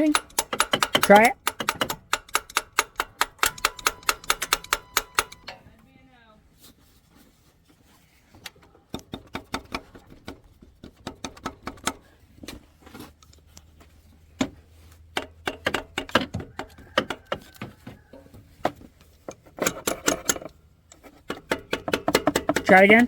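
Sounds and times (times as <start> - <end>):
tool tapping on metal: 0.0 - 5.6, 8.6 - 12.6, 14.4 - 23.0.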